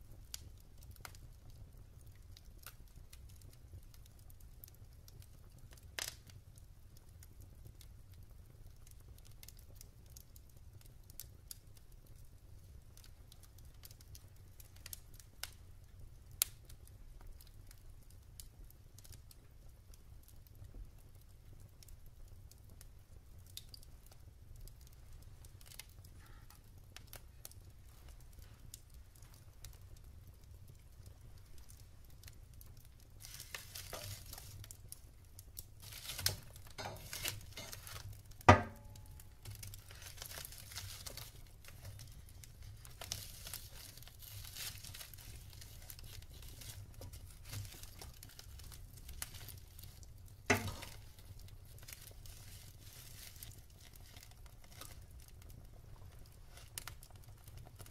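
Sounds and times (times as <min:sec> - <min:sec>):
wood fire crackling: 0:00.0 - 0:57.9
wood popping: 0:24.7 - 0:57.8
fire hiss: 0:33.0 - 0:35.1, 0:35.7 - 0:54.2.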